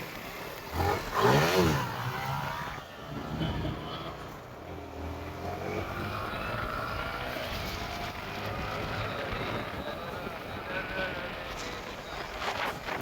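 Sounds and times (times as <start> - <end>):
motorcycle engine revving: 0.6 - 4.4.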